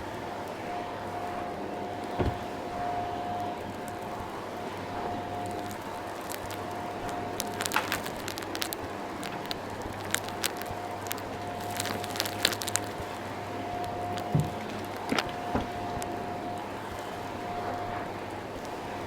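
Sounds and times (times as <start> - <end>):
grit crackling in vacuum nozzle: 4.8 - 16.7.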